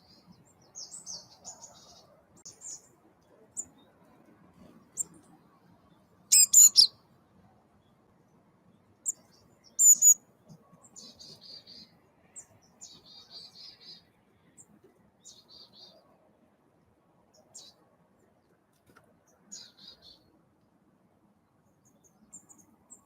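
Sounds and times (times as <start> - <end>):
wild birds calling: 6.3 - 6.9, 9.8 - 10.2.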